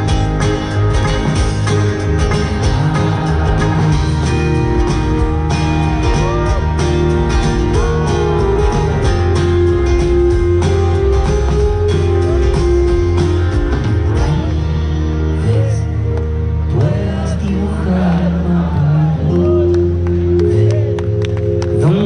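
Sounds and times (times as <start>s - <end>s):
drum beat: 0.0s - 14.5s
bass notes: 0.0s - 22.0s
guitar: 0.0s - 22.0s.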